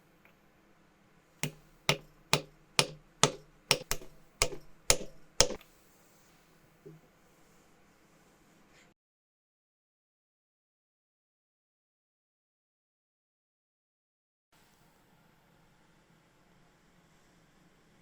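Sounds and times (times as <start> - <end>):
sharp knocks: 1.4 - 5.6.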